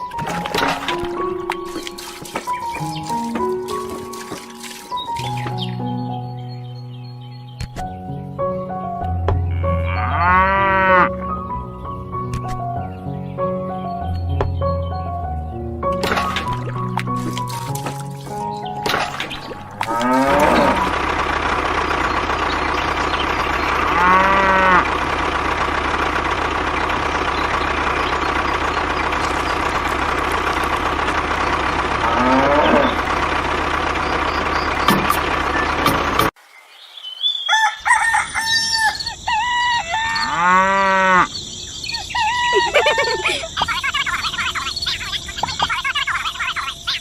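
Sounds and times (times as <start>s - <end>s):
cattle mooing: 9.5s - 11.2s, 19.8s - 21.1s, 23.8s - 25.0s, 32.0s - 33.1s, 40.0s - 41.4s
rooster crowing: 37.4s - 41.3s, 42.1s - 43.4s.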